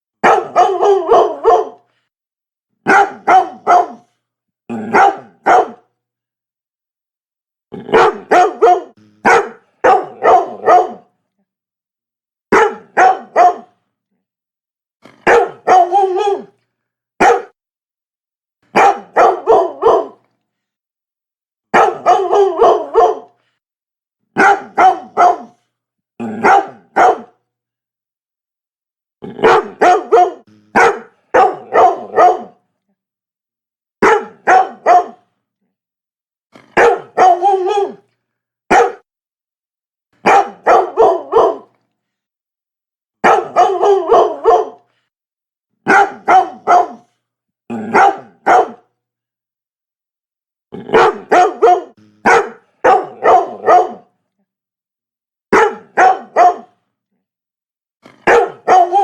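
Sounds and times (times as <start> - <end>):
dog barking: 0.2 - 1.9, 2.8 - 4.1, 4.8 - 5.9, 7.8 - 11.1, 12.5 - 13.8, 15.2 - 16.6, 17.2 - 17.6, 18.7 - 20.2, 21.7 - 23.4, 24.4 - 25.6, 26.4 - 27.4, 29.4 - 32.6, 34.0 - 35.3, 36.6 - 38.0, 38.7 - 39.1, 40.2 - 41.8, 43.2 - 44.9, 45.8 - 47.1, 47.7 - 48.9, 50.9 - 54.2, 55.5 - 56.8, 58.1 - 59.0.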